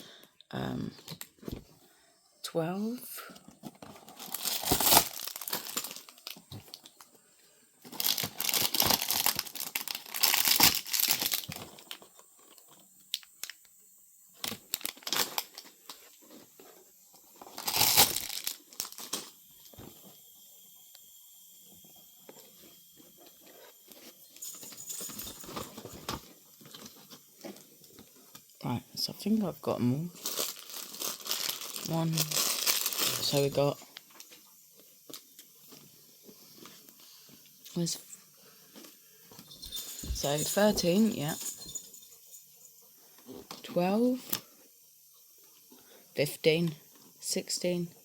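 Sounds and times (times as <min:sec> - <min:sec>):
plastic packaging crinkling and tearing: 0:03.6 - 0:07.1, 0:07.9 - 0:13.7, 0:14.4 - 0:16.6, 0:17.2 - 0:19.8, 0:24.4 - 0:28.5, 0:30.2 - 0:34.4.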